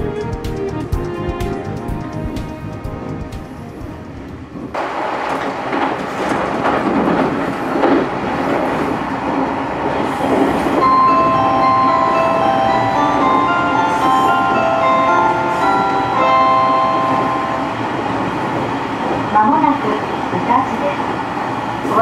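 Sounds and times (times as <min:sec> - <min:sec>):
marimba-like music: 0:00.0 - 0:03.9, 0:10.8 - 0:17.9
train wheels rumbling on rails: 0:00.0 - 0:22.0.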